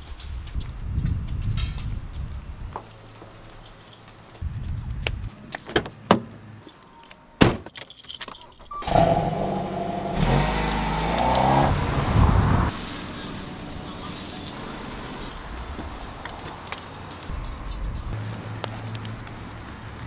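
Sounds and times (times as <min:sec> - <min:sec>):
car engine starting: 0:08.7 - 0:15.8
car accelerating away: 0:08.8 - 0:15.2.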